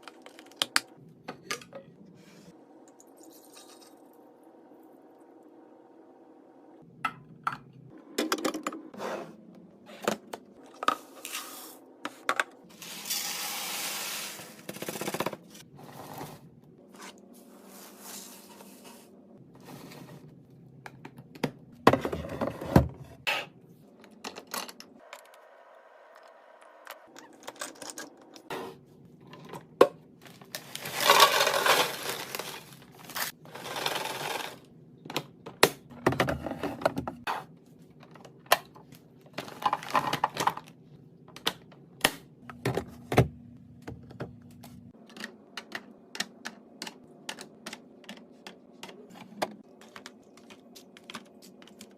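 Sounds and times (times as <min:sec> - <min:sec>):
small hard items clattering: 0:30.3 - 0:34.6
rustling or pouring: 0:30.6 - 0:33.3.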